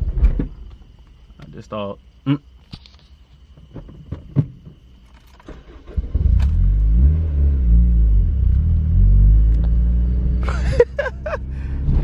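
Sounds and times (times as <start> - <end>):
car engine starting and running: 5.0 - 12.0.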